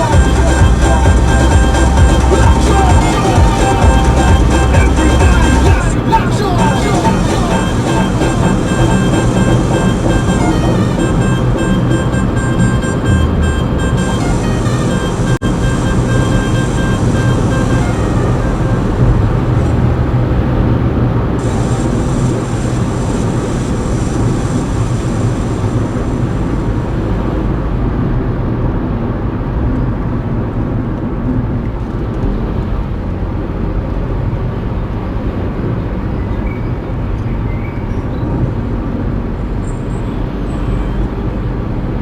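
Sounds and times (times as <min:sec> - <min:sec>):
faint high whine: 0:00.0 - 0:19.8, 0:21.4 - 0:27.4
car cabin road rumble: 0:00.0 - 0:42.0.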